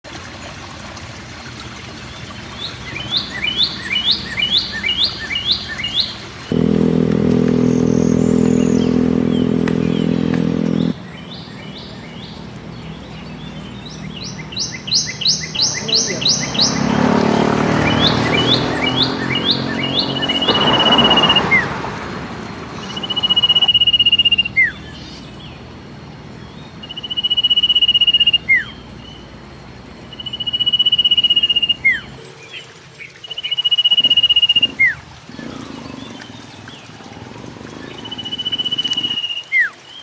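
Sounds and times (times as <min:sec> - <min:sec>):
bird singing high notes: 0:07.5 - 0:11.0, 0:14.2 - 0:21.7, 0:22.8 - 0:25.3, 0:26.8 - 0:29.2.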